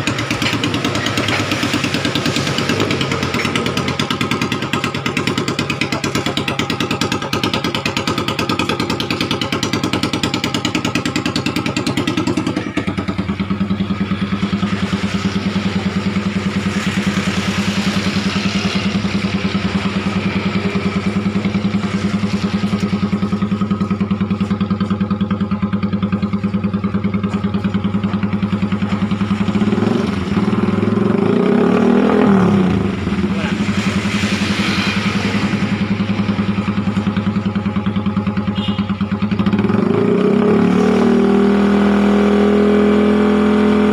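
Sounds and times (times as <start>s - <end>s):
engine idling through muffler: 0.0s - 43.9s
engine revving: 0.0s - 43.9s.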